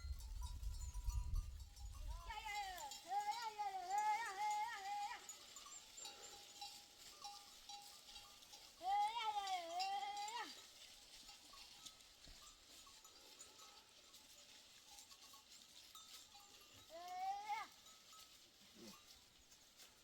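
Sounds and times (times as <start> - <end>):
herd animal bleating: 2.1 - 5.4, 8.8 - 10.6, 16.9 - 17.8.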